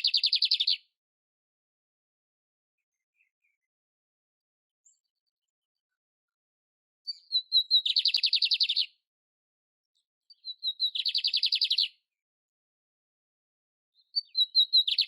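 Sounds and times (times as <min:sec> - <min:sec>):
canary singing: 0:00.0 - 0:00.8, 0:07.1 - 0:09.0, 0:10.3 - 0:12.0, 0:14.0 - 0:15.0.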